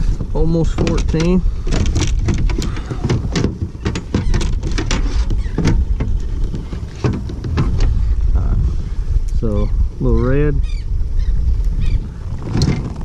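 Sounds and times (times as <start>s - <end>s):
steady low rumble: 0.0s - 13.0s
gear knocking and rattling: 0.2s - 7.9s.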